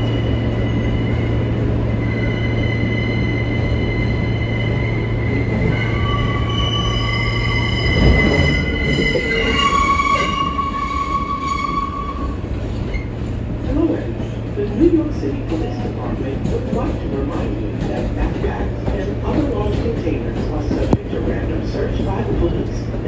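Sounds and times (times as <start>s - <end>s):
subway car rumble: 0.0s - 23.0s
high-pitched squealing: 2.1s - 12.3s.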